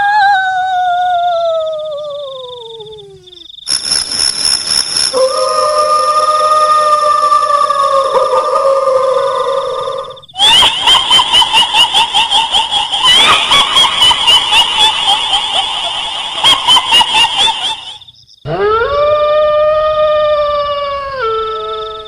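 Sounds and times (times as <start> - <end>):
faint high whine: 3.6 - 7.4
shrill rapid cackling: 5.1 - 18.1
long rising howl: 5.2 - 10.2.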